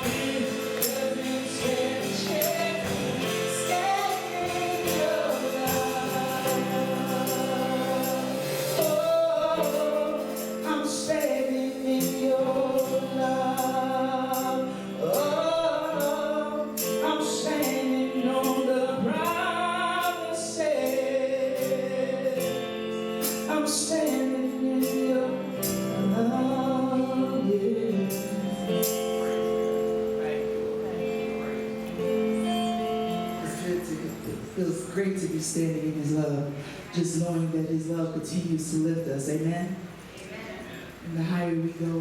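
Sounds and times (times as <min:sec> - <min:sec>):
sharp percussion beat: 0:00.0 - 0:20.2
choir singing gospel: 0:00.0 - 0:29.7
held chords: 0:00.0 - 0:35.1.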